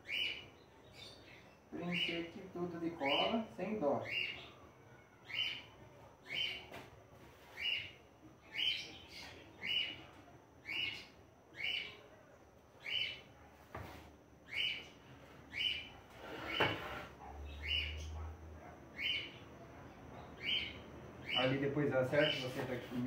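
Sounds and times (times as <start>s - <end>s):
bird chirping: 0.0s - 6.7s, 7.4s - 13.4s, 14.4s - 22.5s.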